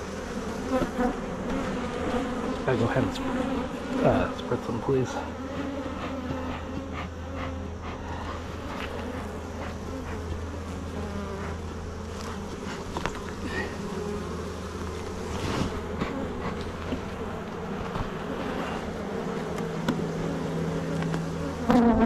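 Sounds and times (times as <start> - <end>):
honeybees buzzing: 0.0 - 22.0
light clicks from hive: 20.9 - 21.3.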